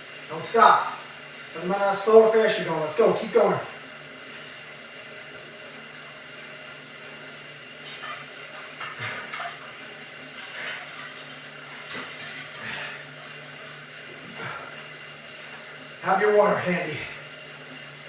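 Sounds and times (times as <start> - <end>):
exercise bike whirring hiss: 0.0 - 18.0.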